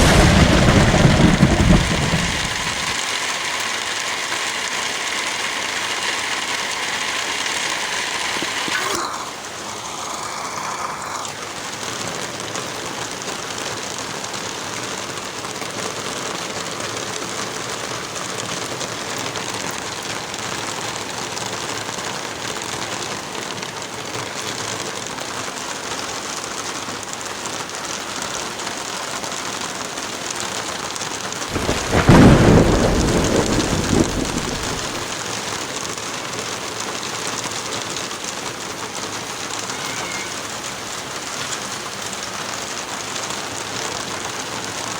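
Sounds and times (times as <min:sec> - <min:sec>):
thunder rumble: 0:00.0 - 0:03.0, 0:31.5 - 0:35.1
heavy rain: 0:00.0 - 0:44.9.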